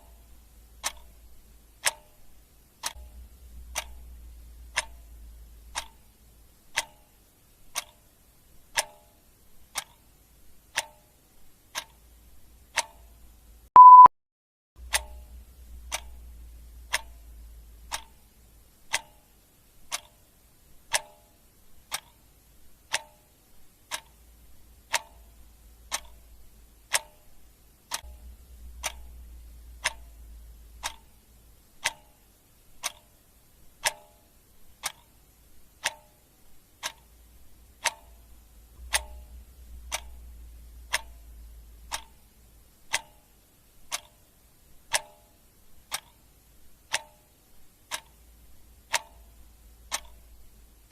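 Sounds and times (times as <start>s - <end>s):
clock ticking: 0.0s - 14.1s, 14.8s - 50.9s.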